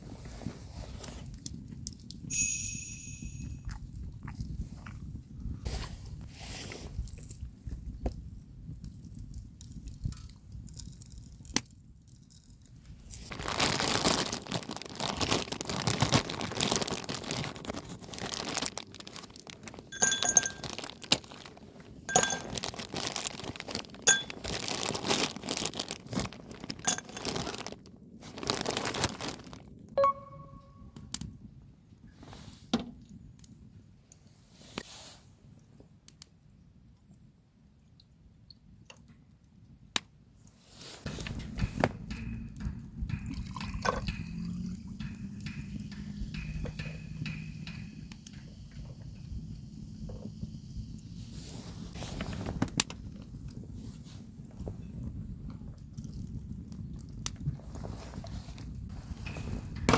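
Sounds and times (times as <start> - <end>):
short ringing clink: 2.3 - 3.6, 20.0 - 20.7
packaging crinkling and tearing: 10.2 - 29.9
gear clicking and clinking: 19.9 - 21.1.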